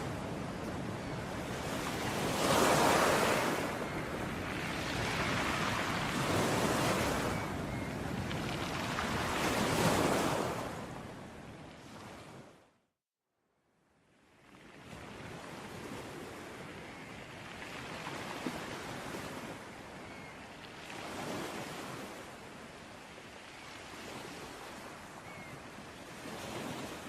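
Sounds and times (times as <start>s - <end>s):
ocean surf washing ashore: 0.0s - 12.3s.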